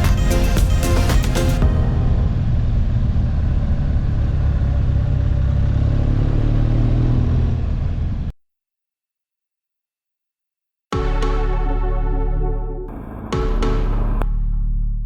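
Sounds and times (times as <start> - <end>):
motorcycle engine running: 12.9 - 14.2.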